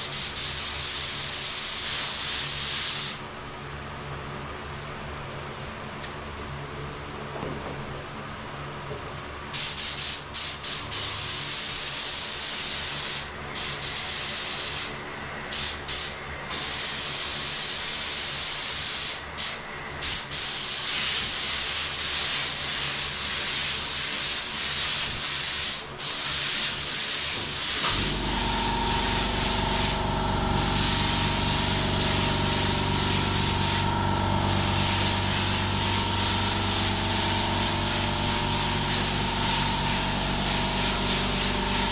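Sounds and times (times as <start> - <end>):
spray gun hissing: 23.3 - 41.9
low machine hum: 27.8 - 41.9.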